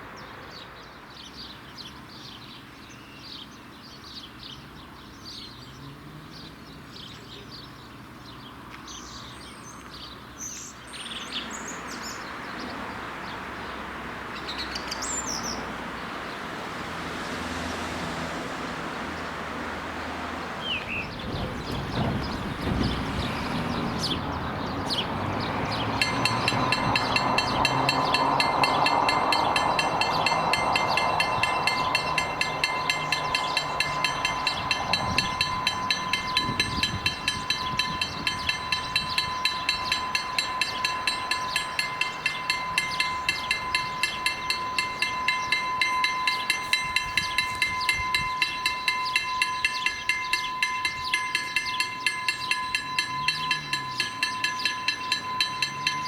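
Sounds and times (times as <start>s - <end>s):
train rumbling by: 15.4s - 56.0s
level crossing bell ringing: 25.9s - 56.0s.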